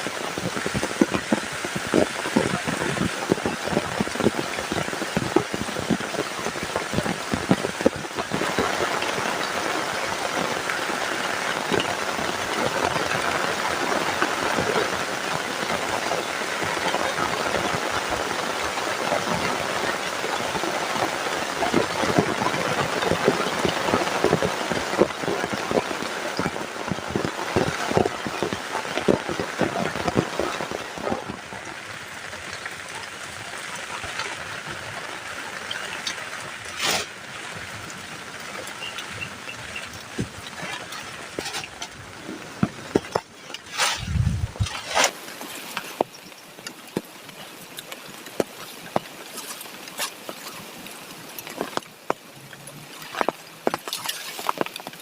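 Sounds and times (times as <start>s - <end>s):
heavy rain falling: 0.0s - 55.0s
raindrop strikes: 0.0s - 55.0s.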